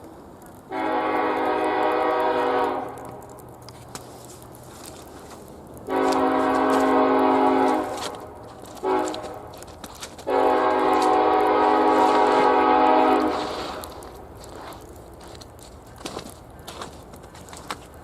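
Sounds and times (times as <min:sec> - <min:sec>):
locomotive air horn blasts: 0:00.7 - 0:03.0, 0:05.9 - 0:09.5, 0:10.2 - 0:14.0.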